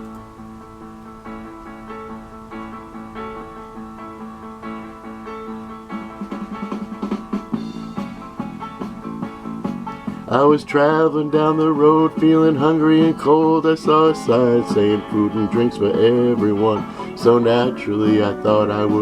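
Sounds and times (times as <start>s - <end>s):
plucked guitar over chords: 0.0s - 19.0s
steady beat: 4.7s - 16.9s.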